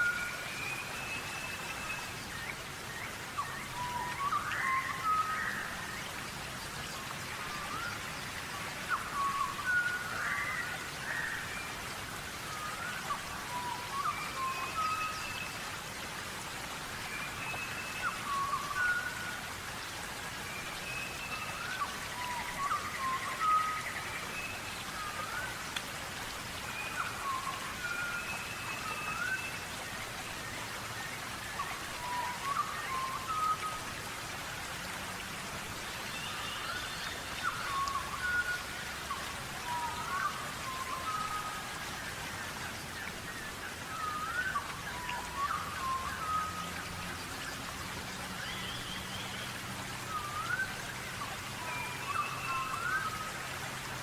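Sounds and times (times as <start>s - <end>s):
thin whistled bird calls: 0.0s - 6.1s, 6.8s - 11.8s, 17.0s - 19.4s, 20.5s - 25.7s, 26.6s - 34.0s, 36.1s - 47.0s, 48.3s - 53.4s.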